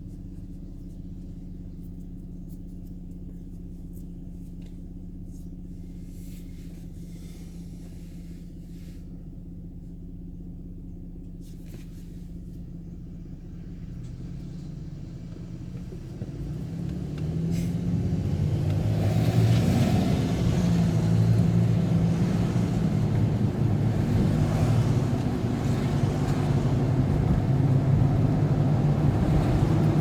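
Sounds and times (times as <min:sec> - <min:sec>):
vehicle engine hum: 0:00.0 - 0:30.0
road noise: 0:11.7 - 0:30.0.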